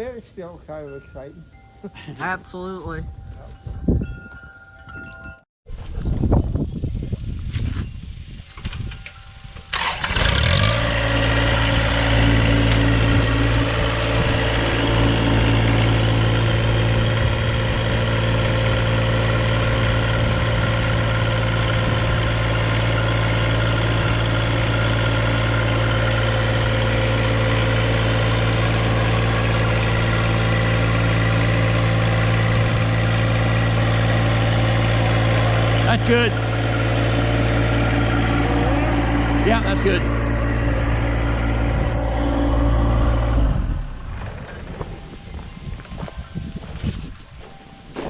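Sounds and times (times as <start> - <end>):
engine starting and idling: 8.6 - 45.2.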